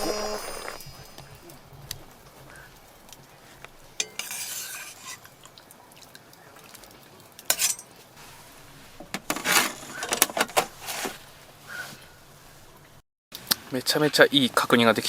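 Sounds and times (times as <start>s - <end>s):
utensils scraping and clinking on pot: 0.1s - 5.6s, 7.4s - 12.8s.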